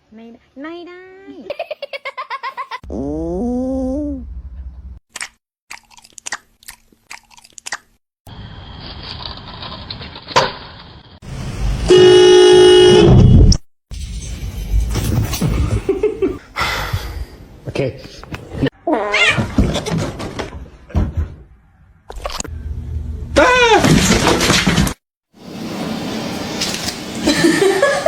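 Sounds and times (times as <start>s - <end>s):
loud steady horn blast: 11.9s - 13.2s.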